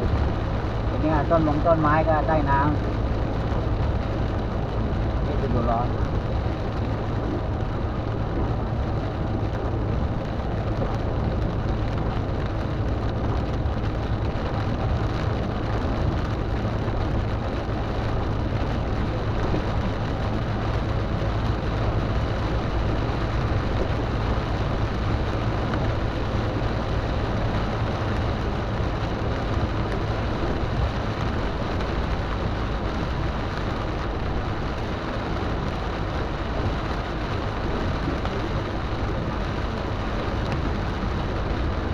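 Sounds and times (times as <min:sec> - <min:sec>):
car humming: 0:00.0 - 0:41.9
heavy rain: 0:00.0 - 0:41.9.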